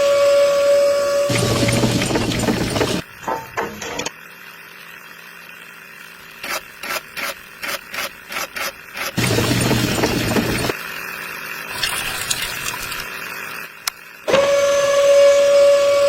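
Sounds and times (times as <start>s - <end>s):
small electric motor running: 4.1s - 16.0s.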